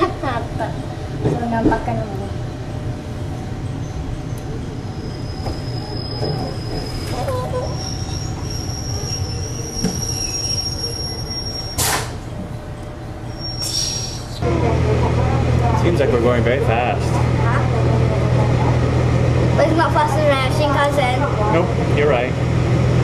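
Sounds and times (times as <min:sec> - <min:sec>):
train rumbling on rails: 0:00.0 - 0:23.0
high-pitched wheel squeal: 0:04.8 - 0:12.1, 0:13.3 - 0:14.4.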